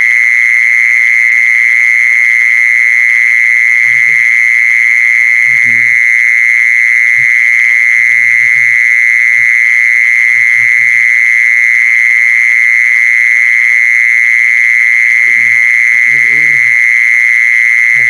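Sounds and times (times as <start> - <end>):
high-pitched insect trill: 0.0 - 18.0
faint low mumbling: 3.9 - 4.2, 5.5 - 6.0, 15.2 - 16.8.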